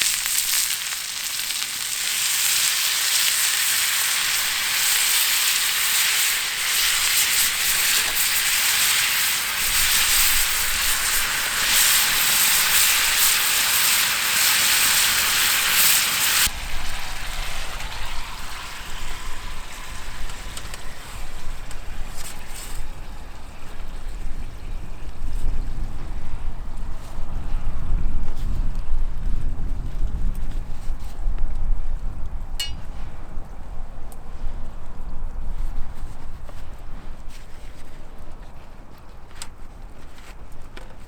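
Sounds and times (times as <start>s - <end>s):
food sizzling in a frying pan: 0.0s - 22.9s.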